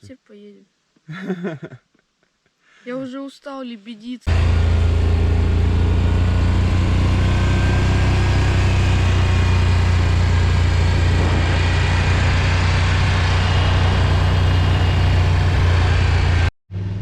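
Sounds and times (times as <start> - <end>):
quad bike engine idling: 4.3 - 16.4.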